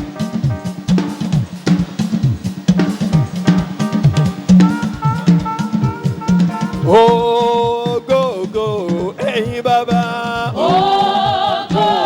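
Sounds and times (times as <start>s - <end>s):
drum hits sliding down in pitch: 0.0s - 9.2s, 10.4s - 12.0s
drum kit playing: 0.0s - 12.0s
held note: 4.5s - 7.7s.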